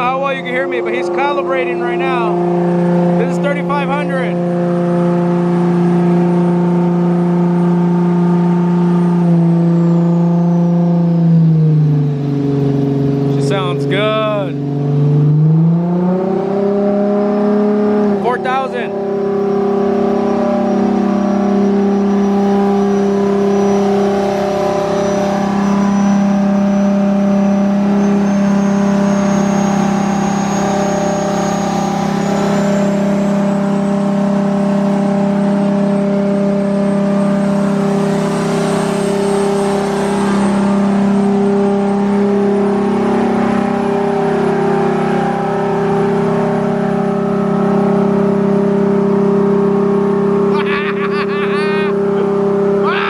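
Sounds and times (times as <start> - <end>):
car engine running on dyno: 0.0 - 53.0
faint high whine rising: 18.1 - 53.0.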